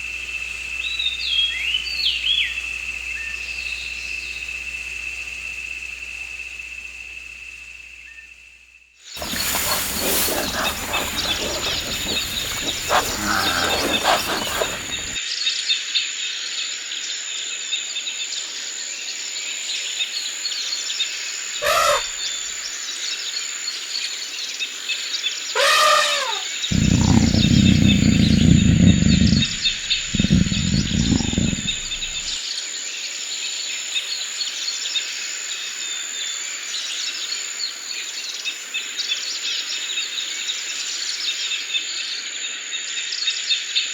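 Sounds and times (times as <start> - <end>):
insect drone: 9.2 - 15.2, 26.7 - 32.4
rising and falling bird calls: 9.2 - 15.2
small birds chirping: 9.2 - 15.2, 26.7 - 32.4.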